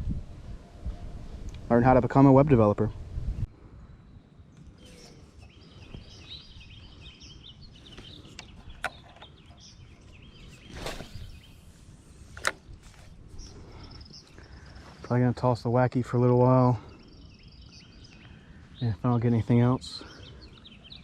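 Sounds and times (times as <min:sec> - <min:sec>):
outdoor ambient noise: 0:00.0 - 0:21.0
birds chirping: 0:01.7 - 0:21.0
brief swish: 0:10.7 - 0:11.4.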